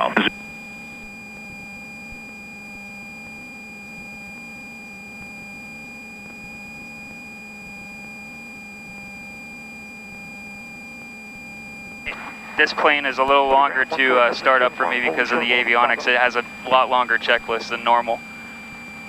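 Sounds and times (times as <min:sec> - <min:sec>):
high-pitched electrical whine: 0:00.0 - 0:19.0
faint low hum: 0:12.1 - 0:19.0.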